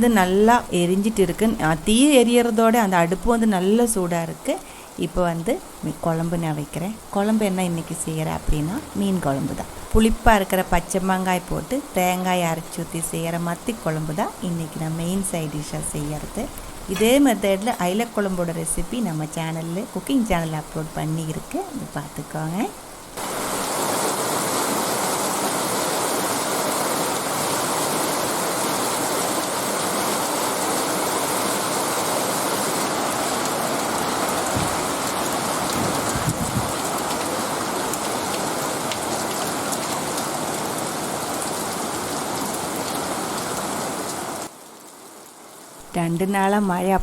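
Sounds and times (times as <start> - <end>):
heavy rain pouring: 0.0 - 45.9
faint low thumps: 34.5 - 35.1.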